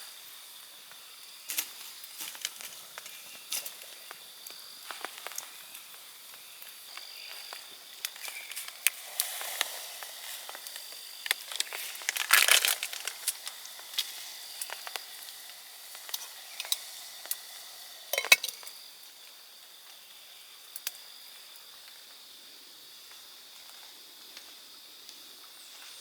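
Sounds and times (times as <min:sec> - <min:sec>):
faint insect trill: 0:00.0 - 0:26.0
campfire wood crackling and popping: 0:01.5 - 0:19.2.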